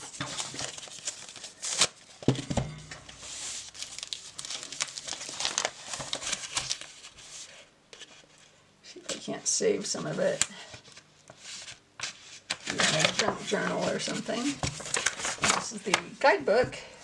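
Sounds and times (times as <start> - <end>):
paper wrapping crinkling: 0.0 - 2.4, 3.1 - 8.4, 10.3 - 16.1.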